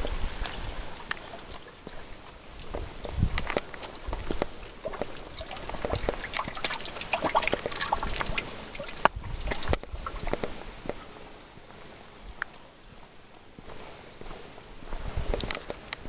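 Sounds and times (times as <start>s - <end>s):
water taps and splashes: 0.0s - 11.0s
rainwater trickling and dripping: 0.0s - 11.1s.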